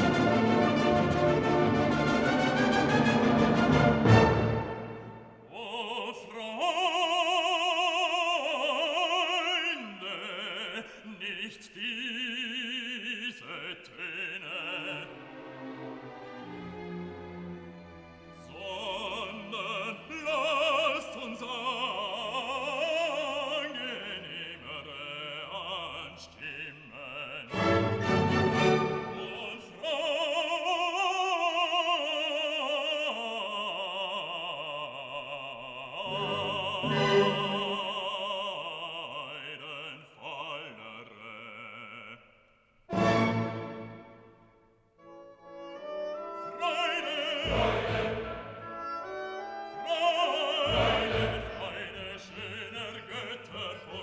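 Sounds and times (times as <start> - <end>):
classical music: 0.0 - 5.9, 14.0 - 26.2, 27.4 - 33.6, 35.9 - 39.3, 42.9 - 54.0
operatic singing: 0.0 - 54.0.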